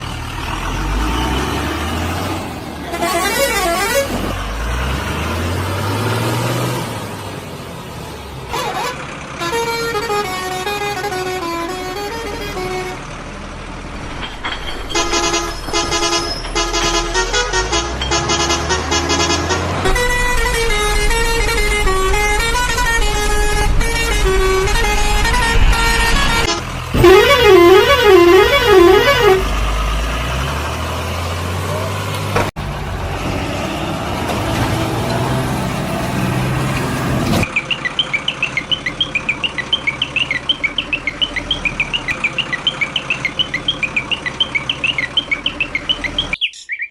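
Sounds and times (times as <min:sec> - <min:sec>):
vehicle engine rumbling: 0:00.0 - 0:46.5
musical truck horn: 0:02.8 - 0:05.0, 0:08.5 - 0:13.3, 0:14.9 - 0:30.3.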